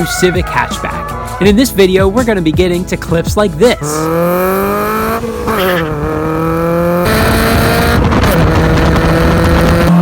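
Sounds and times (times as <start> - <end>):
car exhaust accelerating hard: 3.8 - 10.0.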